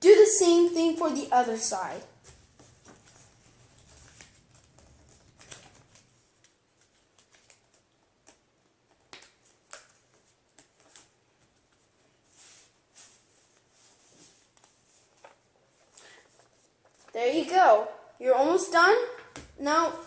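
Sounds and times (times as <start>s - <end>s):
paper being folded and creased: 2.1s - 17.2s.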